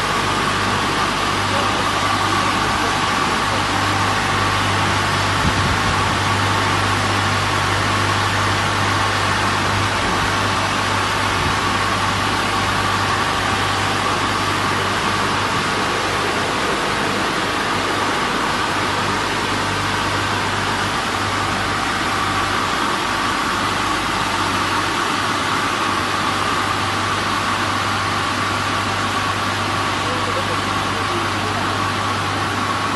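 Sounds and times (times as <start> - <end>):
car wash machine running: 0.0 - 32.9.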